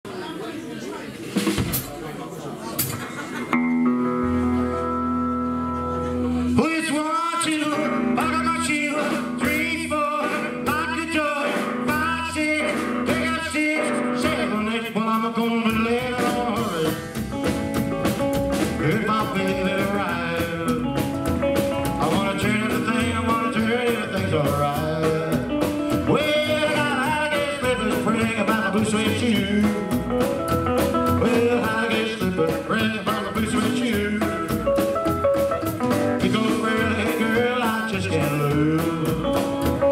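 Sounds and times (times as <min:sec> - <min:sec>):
drums: 0:00.0 - 0:39.9
electric guitar: 0:02.8 - 0:39.9
double bass: 0:03.6 - 0:06.6, 0:11.9 - 0:39.9.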